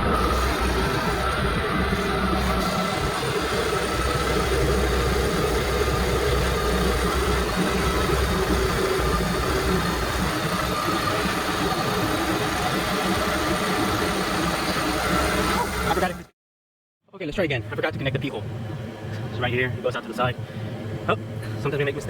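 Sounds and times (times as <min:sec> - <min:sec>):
boat engine idling: 0:00.0 - 0:16.2.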